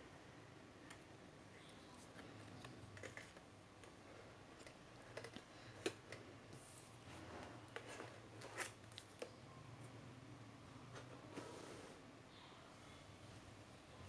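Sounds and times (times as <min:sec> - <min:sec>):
plastic packaging clicks and rustling: 0:02.0 - 0:06.3, 0:07.5 - 0:09.4.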